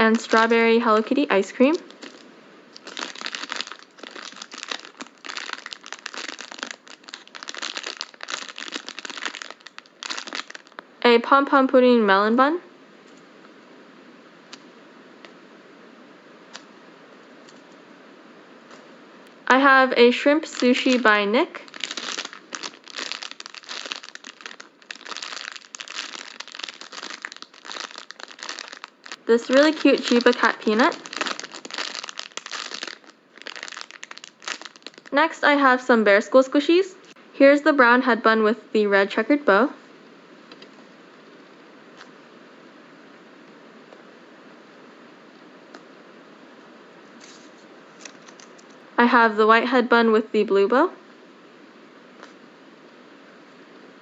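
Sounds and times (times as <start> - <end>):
plastic packaging crinkling: 0.0 - 1.0, 1.7 - 10.9, 20.4 - 35.2, 47.2 - 48.8.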